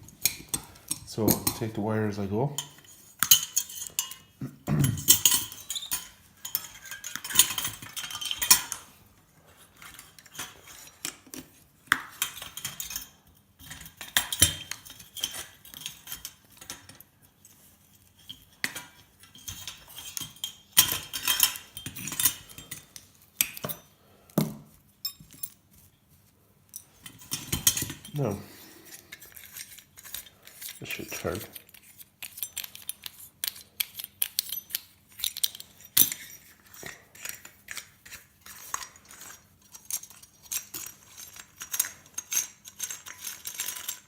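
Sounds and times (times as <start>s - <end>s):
metal parts clinking and rattling: 2.5s - 9.0s, 9.8s - 24.0s, 26.7s - 44.0s.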